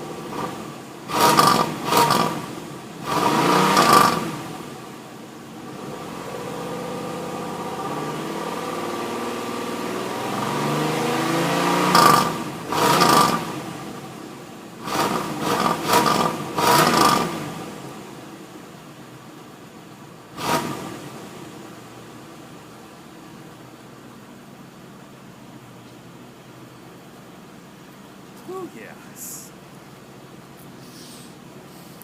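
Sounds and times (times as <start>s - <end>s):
car engine revving: 0.0s - 4.8s, 5.5s - 14.2s, 14.8s - 18.2s, 20.3s - 21.9s.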